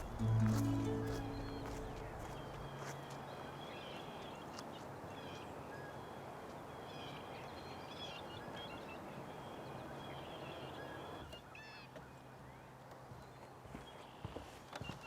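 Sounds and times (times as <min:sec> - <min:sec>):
low music notes: 0:00.0 - 0:03.2.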